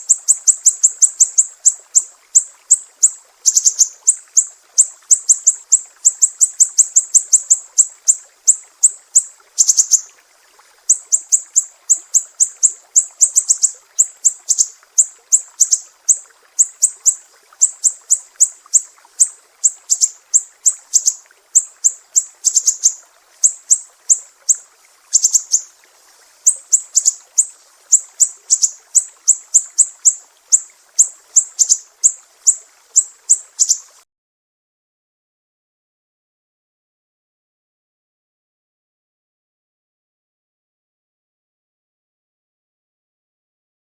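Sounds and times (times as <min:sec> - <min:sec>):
bird singing high chirps: 0:00.0 - 0:10.1, 0:10.9 - 0:25.7, 0:26.5 - 0:33.9.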